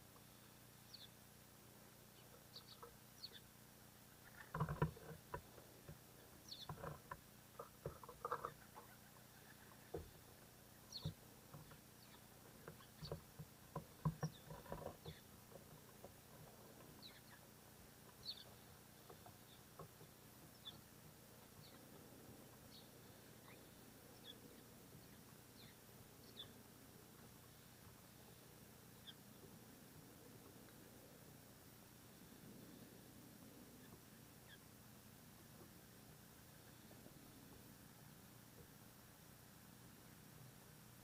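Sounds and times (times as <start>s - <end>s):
faint high bird chirps: 0.2s - 1.3s, 2.1s - 3.5s, 4.1s - 4.6s, 6.4s - 7.0s, 7.6s - 13.2s, 16.9s - 22.0s, 22.6s - 26.6s, 27.4s - 29.5s, 33.8s - 34.8s.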